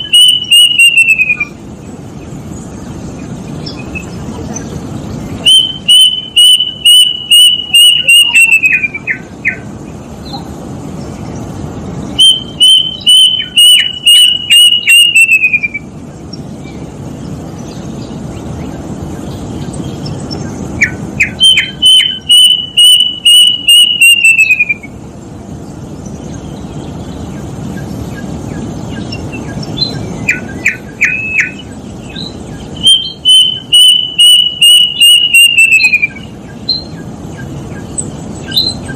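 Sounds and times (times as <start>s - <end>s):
cuckoo whistled calls: 0.0s - 1.7s, 5.4s - 10.5s, 12.2s - 16.0s, 20.0s - 25.0s, 27.8s - 38.9s.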